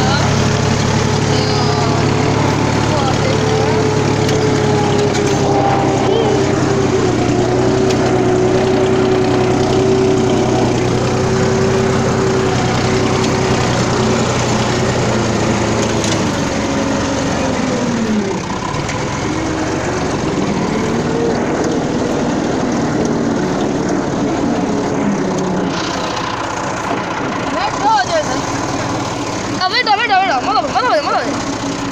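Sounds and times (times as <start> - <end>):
tractor engine running: 0.0 - 31.9.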